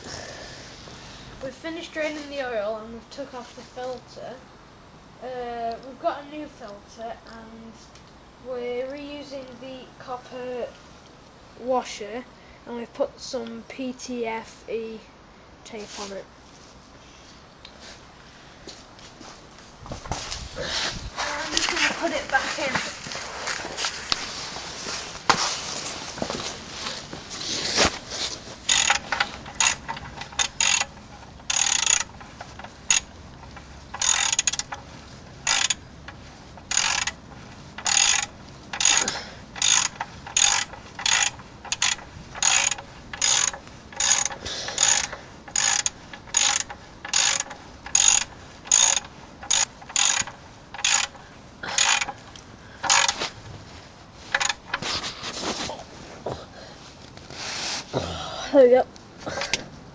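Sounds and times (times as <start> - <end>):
ratchet wrench clicking: 28.6 - 53.3, 54.3 - 54.8.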